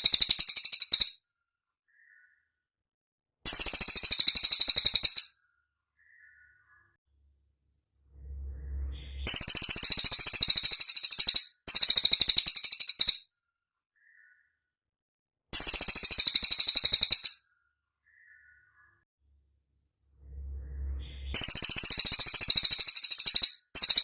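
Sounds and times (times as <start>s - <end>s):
bird high-pitched trills: 8.1s - 13.2s, 20.2s - 24.0s.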